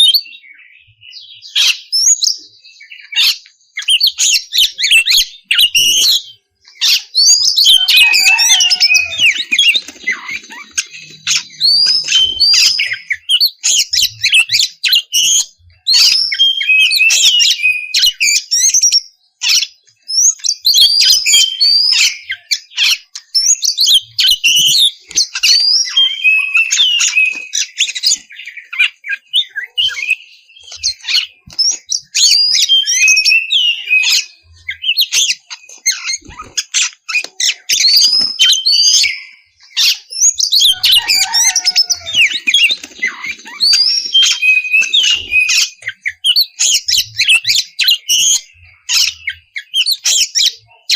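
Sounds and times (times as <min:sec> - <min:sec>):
bird singing whistles and chirps: 0:00.0 - 0:50.9.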